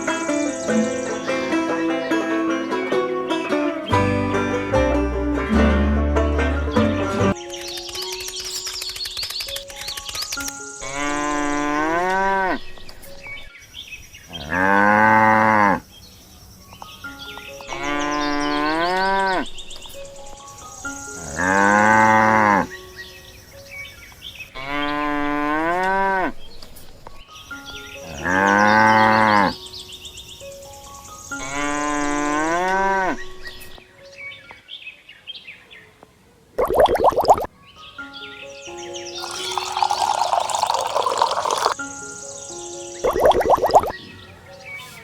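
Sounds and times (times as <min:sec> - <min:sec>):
cows mooing: 0:14.4 - 0:15.8, 0:21.2 - 0:22.7, 0:28.0 - 0:29.6, 0:31.4 - 0:33.2.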